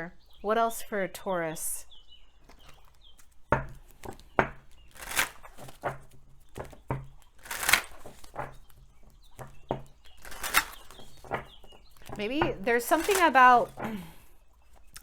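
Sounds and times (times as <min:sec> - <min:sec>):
cards being shuffled: 0:04.9 - 0:06.0, 0:07.4 - 0:08.6, 0:10.2 - 0:13.8.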